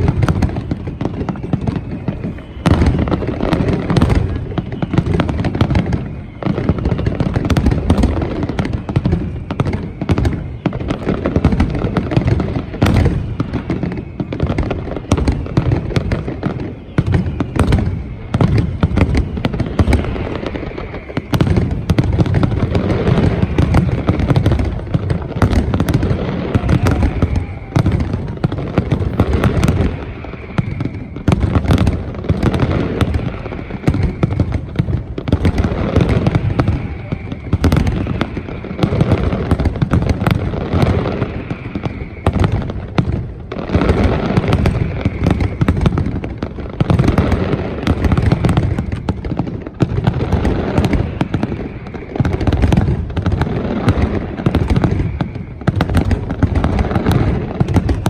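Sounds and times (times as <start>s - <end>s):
falling firework whistles: 0.0s - 58.0s
fireworks bangs and crackles: 0.0s - 58.0s
deep rumble of booming shells: 17.1s - 36.7s.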